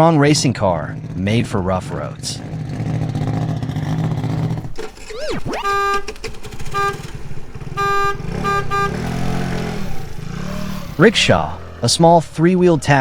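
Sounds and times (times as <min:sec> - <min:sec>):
car engine running: 0:00.2 - 0:13.0
short horn honks: 0:04.8 - 0:12.0.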